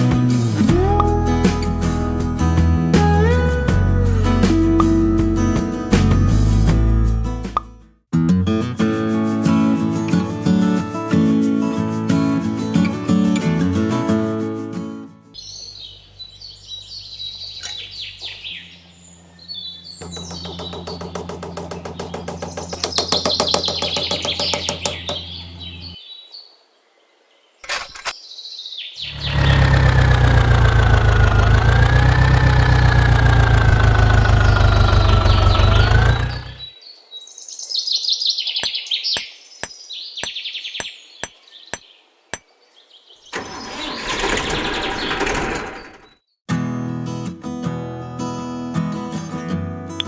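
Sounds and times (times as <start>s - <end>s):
birds chirping: 15.4s - 46.4s
loud motor drone: 29.1s - 36.6s.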